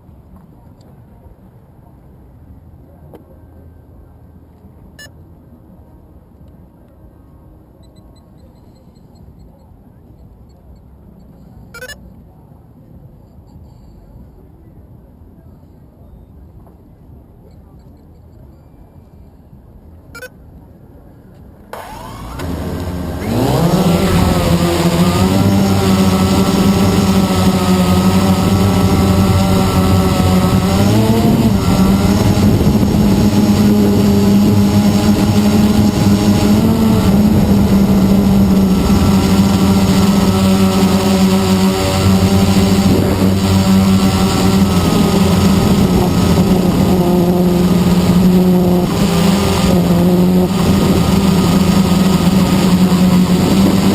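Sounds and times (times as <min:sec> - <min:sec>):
quadcopter propellers humming: 0:21.8 - 0:53.9.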